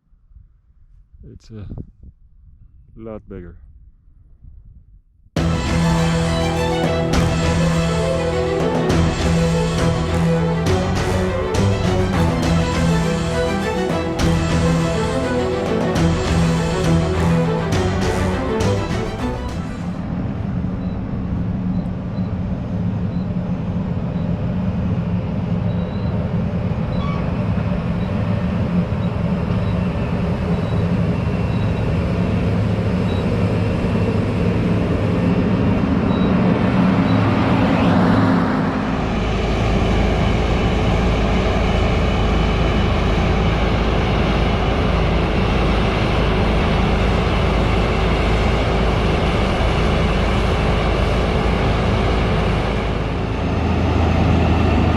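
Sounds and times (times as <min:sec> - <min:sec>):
rising sweep: 0:05.4 - 0:21.8, 0:32.6 - 0:54.9
heavy diesel machinery running: 0:05.4 - 0:54.9.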